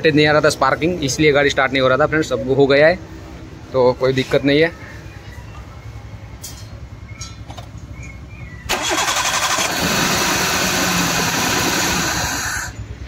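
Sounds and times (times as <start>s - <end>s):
car engine running: 7.1s - 13.0s
engine cranking on starter: 8.7s - 12.8s.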